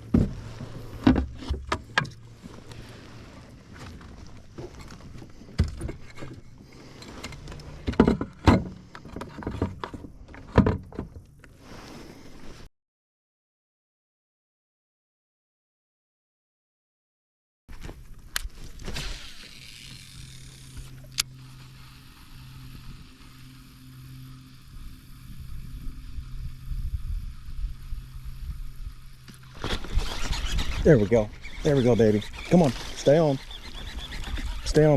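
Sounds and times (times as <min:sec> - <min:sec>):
boat motor humming: 0:00.0 - 0:10.6, 0:18.0 - 0:34.9.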